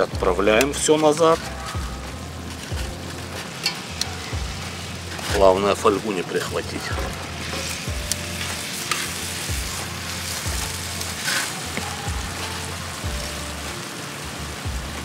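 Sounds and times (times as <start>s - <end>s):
chicken sizzling in hot pan: 0.0s - 15.0s
metal tongs clicking on pan: 3.4s - 4.3s.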